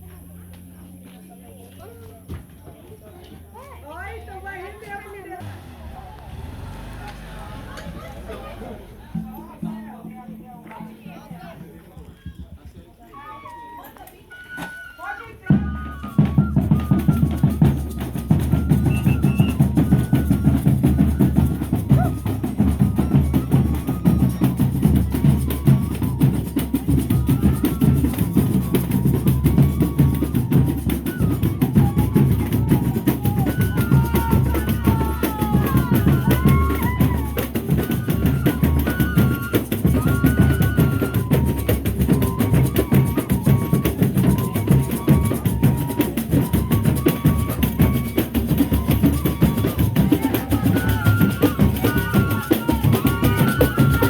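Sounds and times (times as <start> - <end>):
snare and bass drumming: 15.5 - 54.0.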